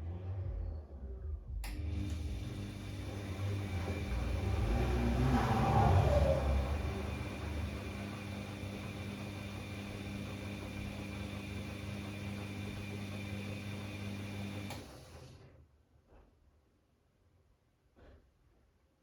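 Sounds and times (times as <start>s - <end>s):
washing machine motor humming: 1.7s - 15.3s.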